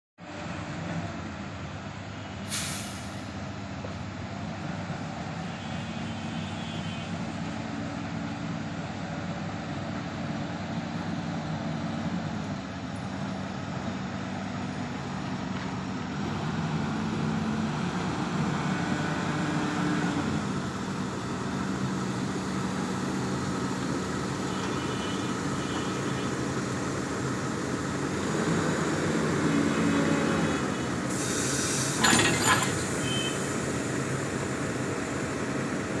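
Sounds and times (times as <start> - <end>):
loud hiss: 2.4 - 3.4, 31.1 - 34.6
rail vehicle engine revving: 7.1 - 36.0.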